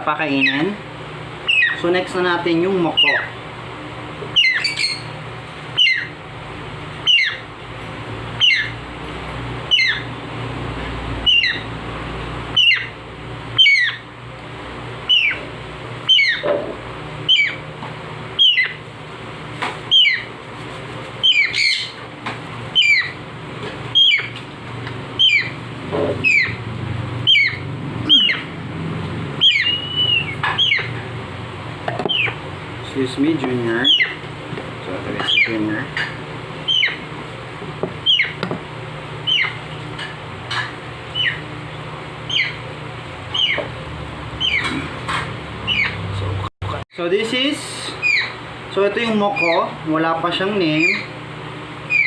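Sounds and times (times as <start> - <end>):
steady low hum: 0.0 - 52.0
parrot squawking: 1.4 - 1.9, 2.8 - 3.4, 4.3 - 5.1, 5.8 - 6.2, 7.0 - 7.5, 8.4 - 8.8, 9.7 - 10.1, 11.2 - 11.7, 12.5 - 13.0, 13.6 - 14.1, 15.1 - 16.5, 17.2 - 17.7, 18.4 - 18.8, 19.9 - 20.3, 21.2 - 22.0, 22.7 - 23.2, 23.9 - 24.4, 25.2 - 26.6, 27.2 - 28.6, 29.4 - 31.0, 32.1 - 32.4, 33.8 - 34.2, 35.2 - 37.1, 38.0 - 38.4, 39.2 - 39.6, 40.5 - 41.5, 42.2 - 42.7, 43.3 - 43.7, 44.4 - 44.9, 45.6 - 46.1, 48.0 - 48.4, 49.2 - 49.7, 50.6 - 51.2.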